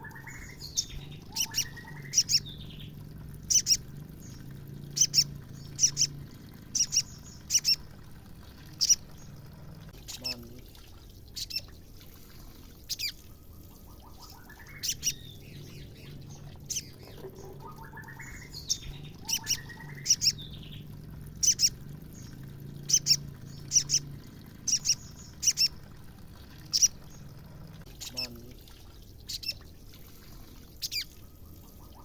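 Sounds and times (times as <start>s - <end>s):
bird chipping calls: 0.0s - 8.0s, 8.7s - 9.5s, 11.2s - 11.8s, 12.8s - 28.4s, 29.1s - 29.7s, 30.8s - 32.0s
rising bird trills: 0.0s - 8.0s, 12.8s - 27.4s.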